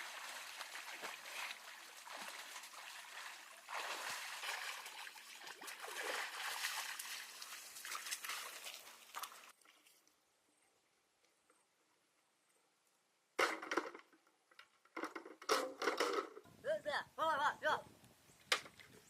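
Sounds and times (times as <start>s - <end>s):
water dripping: 0.0s - 10.2s
water trickling and splashing: 0.0s - 10.2s.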